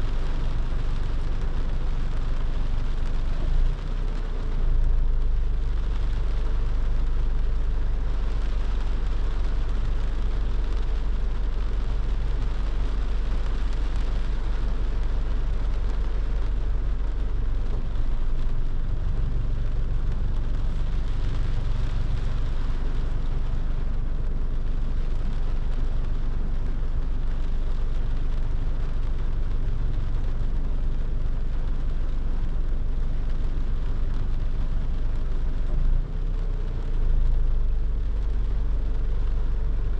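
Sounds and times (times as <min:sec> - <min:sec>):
car engine and road rumble: 0:00.0 - 0:39.9
rain and wet tyres hiss: 0:00.0 - 0:39.9.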